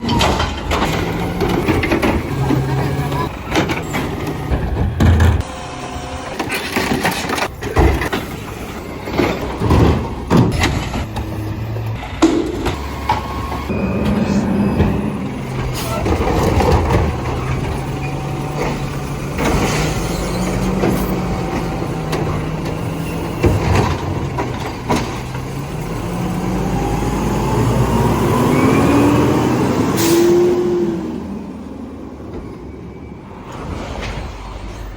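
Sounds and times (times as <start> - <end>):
truck engine hum: 0.0 - 34.9
rising tone: 12.8 - 16.2.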